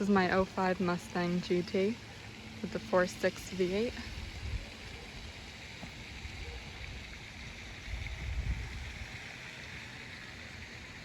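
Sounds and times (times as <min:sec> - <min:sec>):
wind buffeting microphone: 0:07.8 - 0:09.2.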